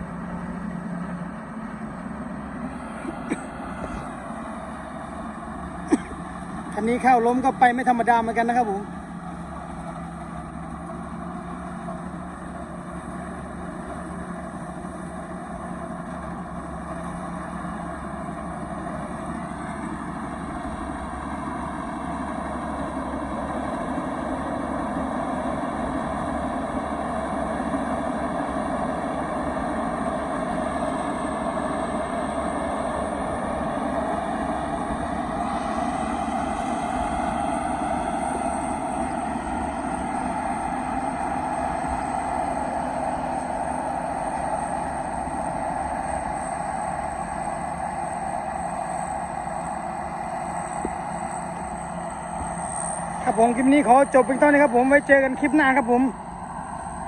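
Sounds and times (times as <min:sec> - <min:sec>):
diesel engine running: 0:00.0 - 0:57.0
faint high whine: 0:00.0 - 0:57.0.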